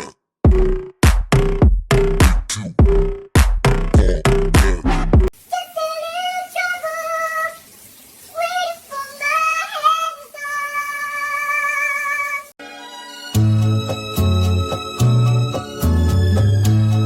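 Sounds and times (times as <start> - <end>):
high-pitched singing-like voice: 5.5 - 7.7, 8.3 - 12.6.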